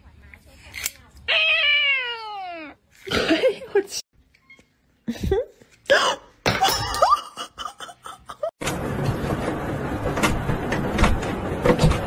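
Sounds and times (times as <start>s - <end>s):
people laughing: 6.9s - 8.5s.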